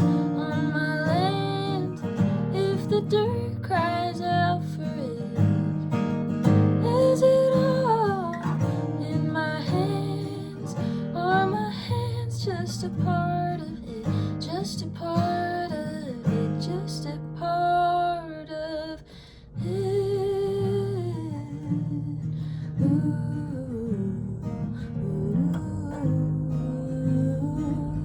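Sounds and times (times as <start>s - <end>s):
acoustic guitar strumming: 0.0s - 19.0s
woman singing: 0.0s - 28.0s.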